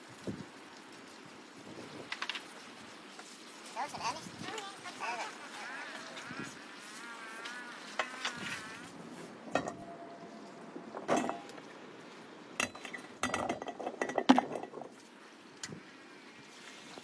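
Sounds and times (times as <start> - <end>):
pots and utensils clinking: 9.5 - 10.3, 11.0 - 11.7, 12.5 - 15.0.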